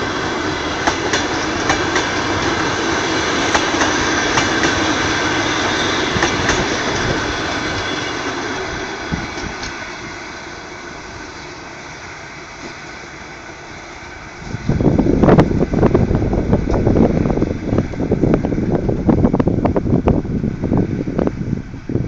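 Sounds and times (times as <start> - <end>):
hum from rails: 0.0 - 22.0
train rumbling: 0.0 - 22.0
wind buffeting microphone: 0.2 - 9.8, 14.3 - 22.0.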